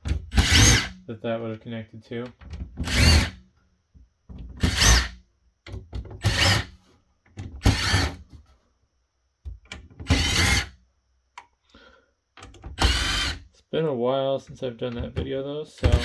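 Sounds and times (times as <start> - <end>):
power screwdriver motor: 0.4 - 0.9, 2.8 - 3.4, 4.6 - 5.1, 6.2 - 6.7, 7.7 - 8.2, 10.1 - 10.7, 12.8 - 13.4.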